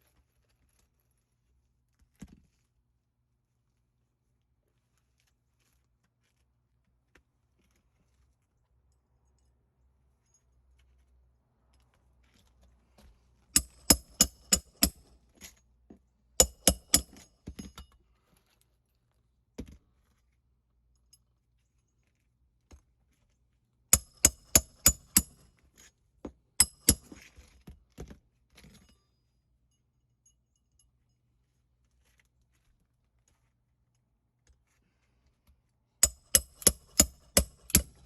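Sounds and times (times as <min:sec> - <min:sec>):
metal tool strikes ringing: 0:16.4 - 0:17.2, 0:24.0 - 0:25.4, 0:26.6 - 0:27.1, 0:36.0 - 0:38.0.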